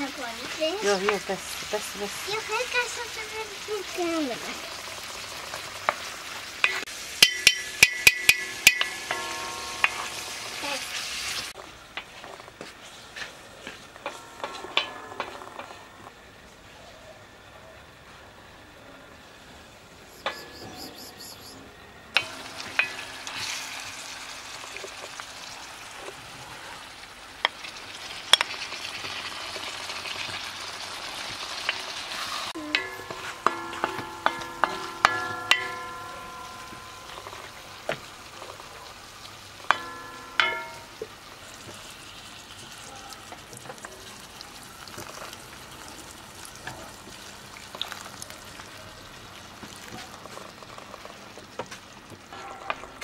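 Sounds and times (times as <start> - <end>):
beans and meat sizzling: 0.0 - 16.2, 22.2 - 53.0
wok ringing: 6.5 - 11.6, 13.9 - 16.2, 20.0 - 21.6, 22.2 - 25.8, 27.4 - 41.6
wooden spoon scraping wok: 29.0 - 35.1.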